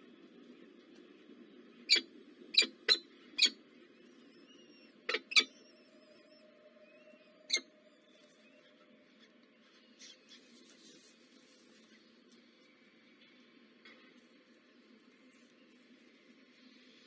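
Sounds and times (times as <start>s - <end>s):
bird squeaky chirps: 2.6s - 3.6s, 4.6s - 5.8s.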